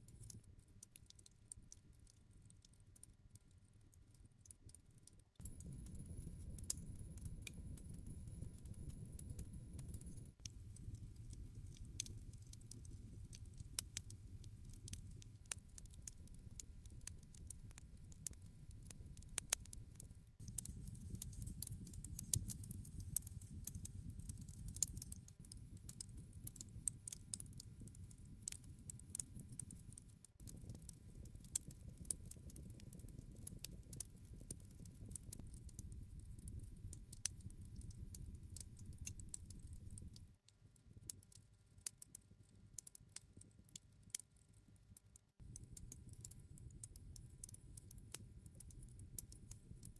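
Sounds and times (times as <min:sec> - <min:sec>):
low rumble of flames: 0:05.4 - 0:19.8, 0:20.4 - 0:40.3
campfire crackling: 0:09.8 - 0:19.7, 0:20.5 - 0:40.2.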